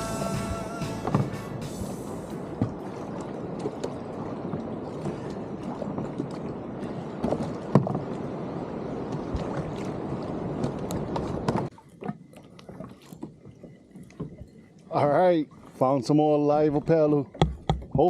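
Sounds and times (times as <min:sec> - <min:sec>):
water sloshing against kayak hull: 0:00.0 - 0:18.0
knocks and clicks: 0:17.3 - 0:18.0.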